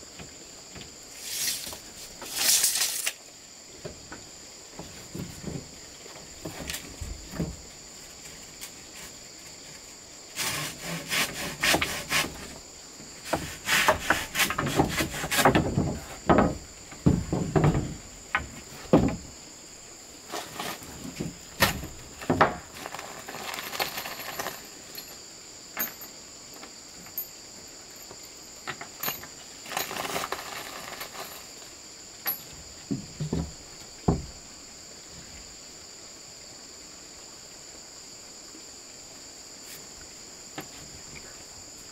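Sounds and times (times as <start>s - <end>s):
insects buzzing: 0.0s - 41.9s
knocks and scraping on wood: 3.8s - 9.8s, 10.4s - 19.4s, 20.3s - 25.2s, 28.0s - 31.6s, 32.3s - 34.4s.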